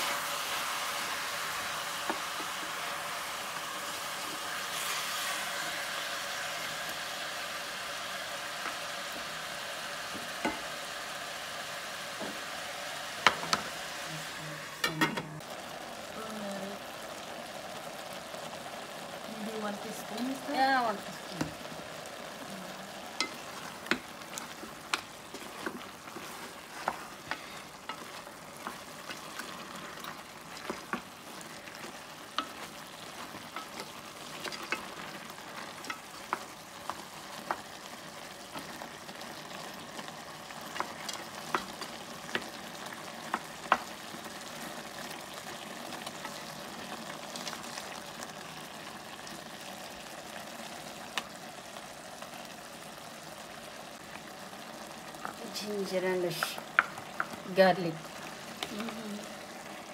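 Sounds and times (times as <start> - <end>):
meat sizzling in a pot: 0.0 - 59.9
spatula knocking and scraping pot: 23.1 - 36.5.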